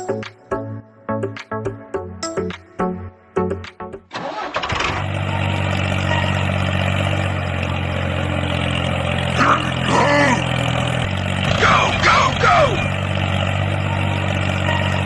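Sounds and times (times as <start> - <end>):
small engine droning: 4.2 - 15.0.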